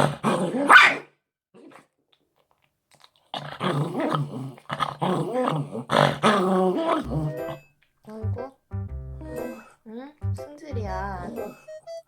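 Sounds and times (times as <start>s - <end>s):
dog growling and whining: 0.0s - 1.0s, 3.4s - 7.7s.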